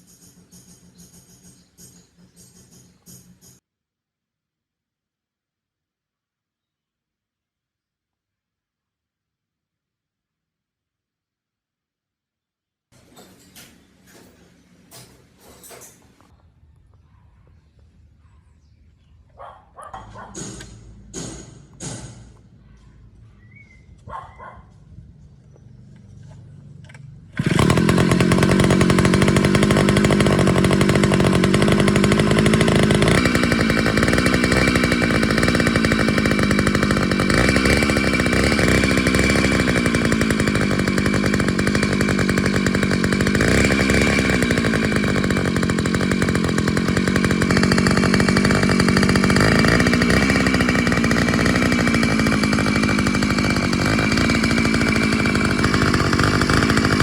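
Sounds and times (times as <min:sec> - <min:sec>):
small two-stroke engine running: 0:00.0 - 0:03.6, 0:25.8 - 0:57.0.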